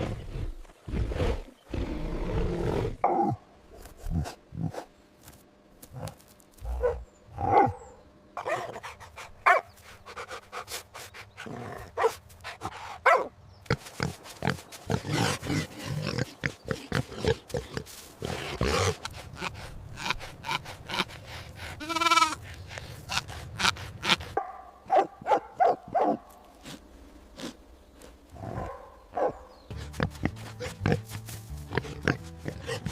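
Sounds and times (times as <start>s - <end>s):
dogs barking: 6.7s - 9.7s, 11.9s - 12.2s, 24.4s - 26.4s, 28.4s - 29.5s.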